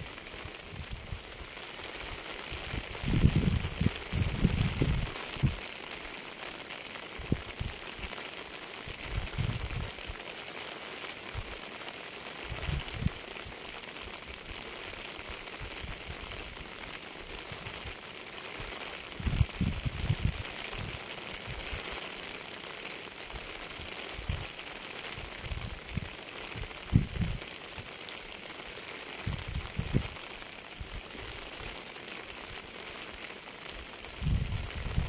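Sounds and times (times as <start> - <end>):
steady rain hissing: 0.0 - 35.0.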